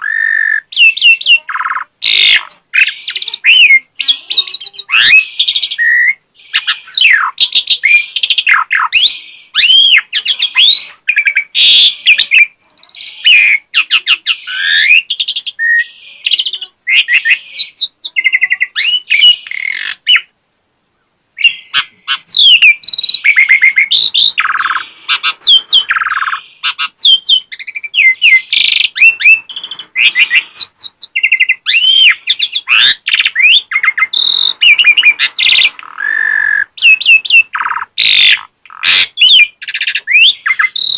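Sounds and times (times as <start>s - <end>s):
starling singing whistles and clicks: 21.4s - 40.9s.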